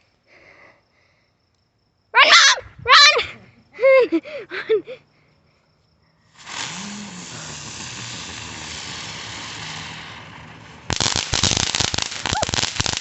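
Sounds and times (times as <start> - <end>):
firework hissing and crackling: 6.3 - 13.0.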